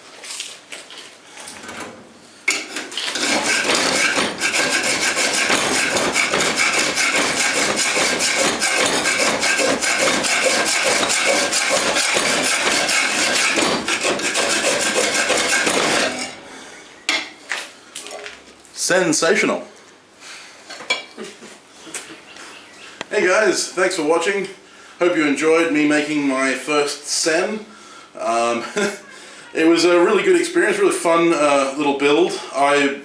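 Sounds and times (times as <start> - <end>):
scraper scraping steel: 2.8 - 16.4.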